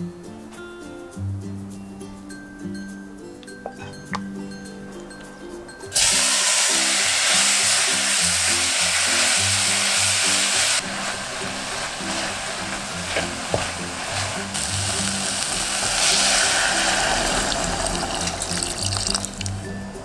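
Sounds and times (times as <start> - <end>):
food sizzling in hot oil: 5.9 - 19.8.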